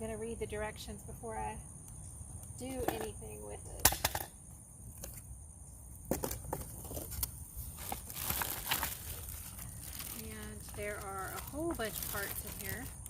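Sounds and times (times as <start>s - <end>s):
packaging rustling and crinkling: 6.7s - 13.0s.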